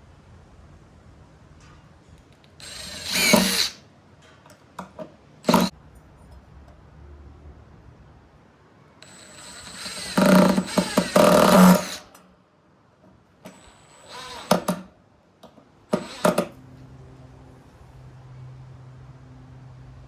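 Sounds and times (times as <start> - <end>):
power drill driving screws into wood: 2.6 - 3.8, 5.4 - 5.7, 9.0 - 12.2, 13.5 - 14.9, 15.9 - 16.6.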